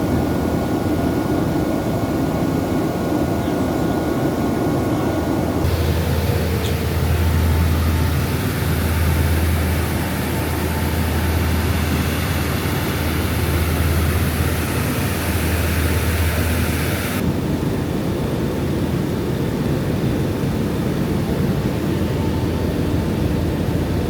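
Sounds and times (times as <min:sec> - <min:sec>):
aircraft engine noise: 0:00.0 - 0:24.0.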